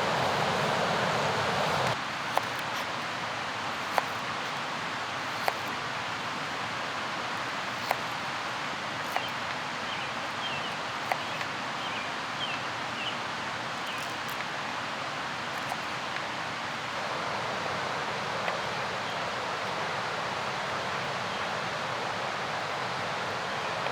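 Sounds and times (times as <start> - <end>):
river rushing: 0.0 - 2.1, 16.6 - 23.9.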